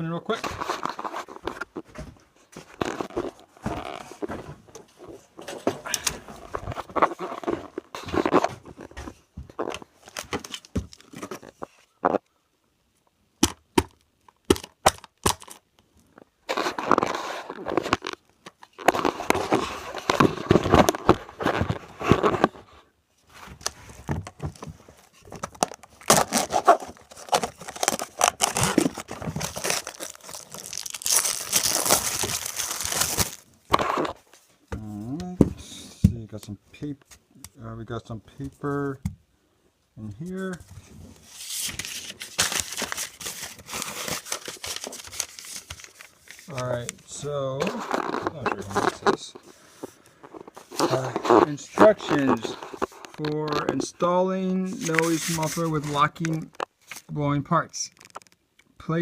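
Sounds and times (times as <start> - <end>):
packaging tearing and crinkling: 14.5 - 15.6, 16.5 - 22.5, 25.3 - 34.2, 41.3 - 47.0, 47.6 - 49.6, 50.2 - 53.9, 54.7 - 57.1, 57.9 - 58.4.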